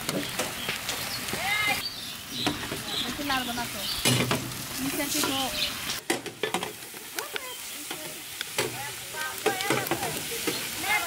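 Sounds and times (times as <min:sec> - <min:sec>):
banana sizzling in oil: 0:00.0 - 0:11.0.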